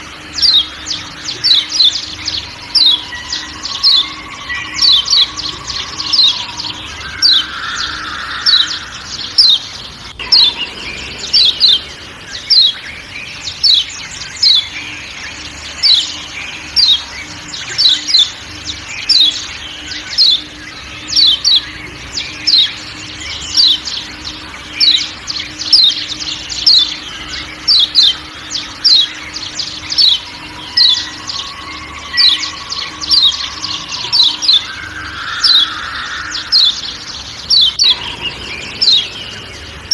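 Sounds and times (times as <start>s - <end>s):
forest background: 0.0s - 39.9s.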